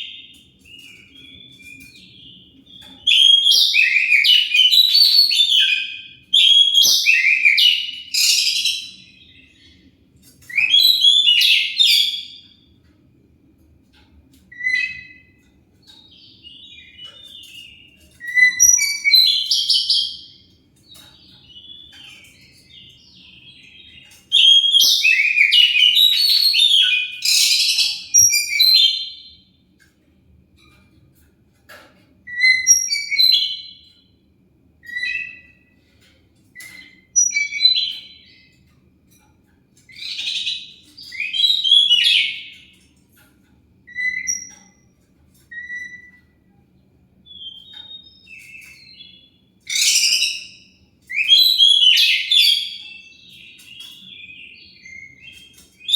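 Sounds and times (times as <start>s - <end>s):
songbird whistling and chattering: 49.7s - 52.8s.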